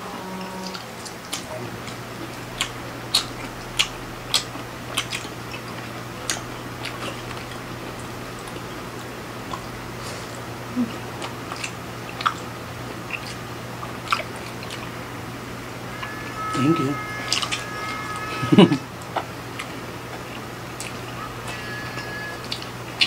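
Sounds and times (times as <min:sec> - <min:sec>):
steady low hum: 0:00.0 - 0:23.0
wet chewing and mouth smacks: 0:11.2 - 0:12.4, 0:13.0 - 0:14.9.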